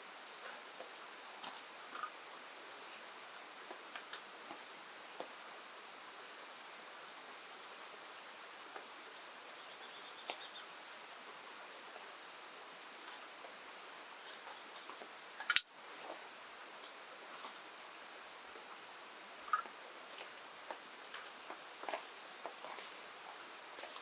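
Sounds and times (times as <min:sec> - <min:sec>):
rain: 0:00.0 - 0:24.0
flowing river water: 0:10.4 - 0:24.0.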